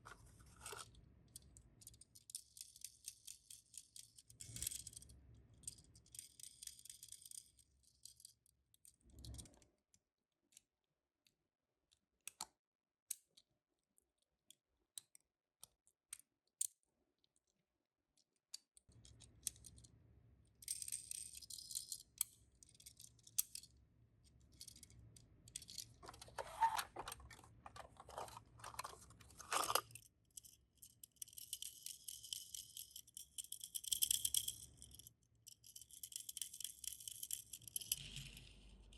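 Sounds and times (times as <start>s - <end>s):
toy cars clicking: 24.5s - 38.9s.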